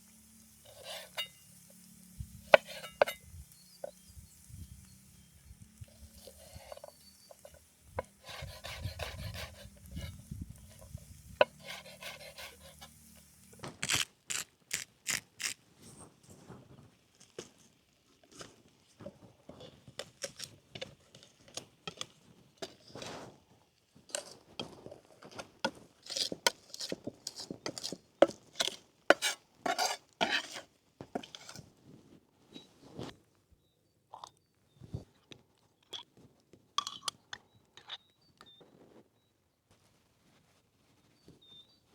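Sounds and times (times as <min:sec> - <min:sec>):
utensils scraping a dish: 0:00.6 - 0:04.1, 0:05.9 - 0:13.2, 0:26.0 - 0:31.6.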